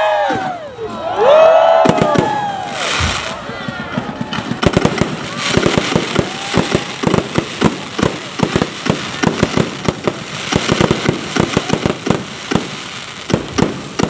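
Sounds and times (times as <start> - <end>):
fireworks bangs: 0.0 - 14.0
fireworks crackling: 0.0 - 14.0.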